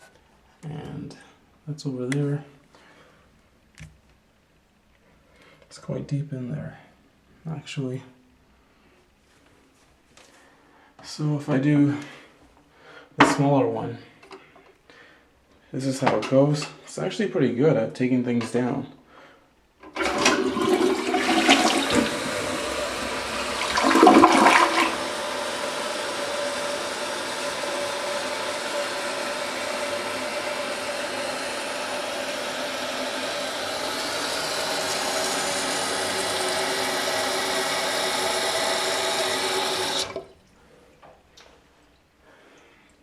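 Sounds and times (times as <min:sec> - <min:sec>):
toilet flushing: 0:19.8 - 0:40.5.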